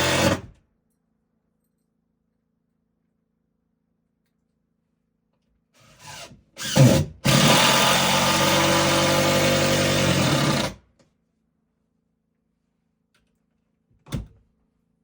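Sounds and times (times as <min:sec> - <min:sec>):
power drill motor running: 0:00.0 - 0:00.4, 0:05.9 - 0:10.7.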